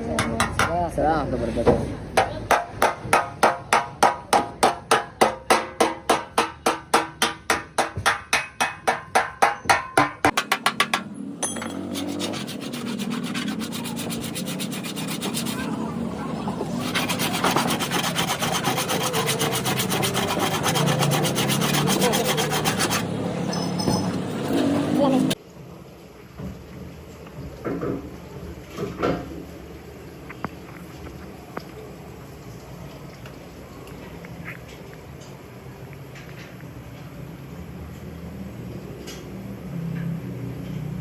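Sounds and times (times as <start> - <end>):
abrasive rubbing on car panel: 11.8 - 23.1.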